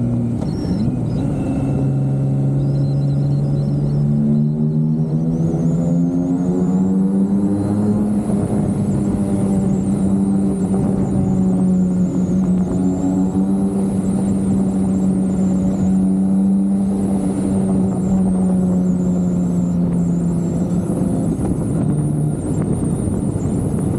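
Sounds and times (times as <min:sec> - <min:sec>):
motorcycle exhaust cruising: 0:00.0 - 0:23.9.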